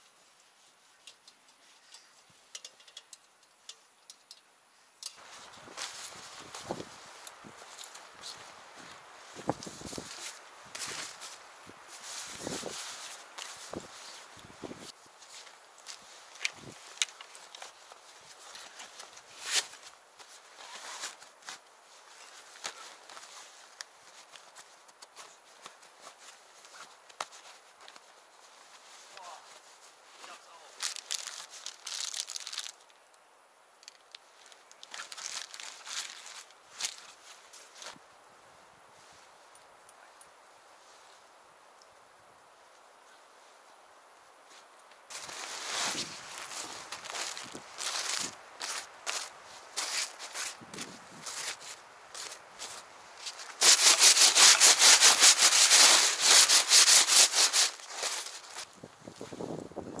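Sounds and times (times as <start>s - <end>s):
crinkling and rustling: 5.1s - 33.0s, 33.8s - 38.0s, 44.5s - 60.0s.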